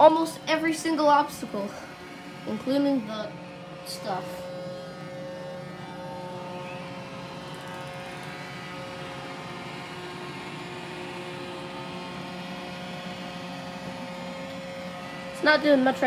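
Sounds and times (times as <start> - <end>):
robot vacuum whine and hum: 0.0 - 16.0.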